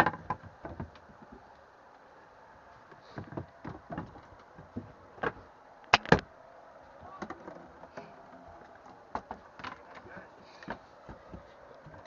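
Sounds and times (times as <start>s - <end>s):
scattered knocks and clicks: 0.0s - 1.4s, 3.2s - 6.2s, 7.2s - 12.0s.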